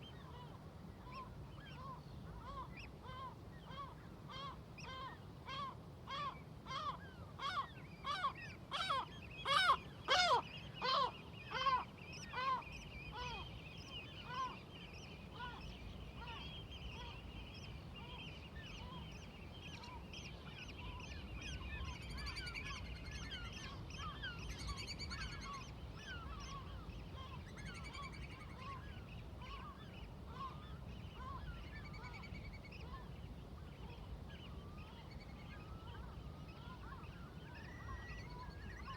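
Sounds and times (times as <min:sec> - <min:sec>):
flock of birds chattering: 0:07.5 - 0:38.9.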